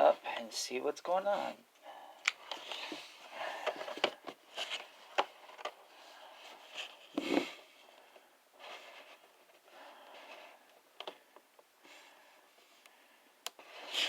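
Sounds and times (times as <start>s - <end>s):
cardboard and plastic rustling: 2.4s - 7.8s.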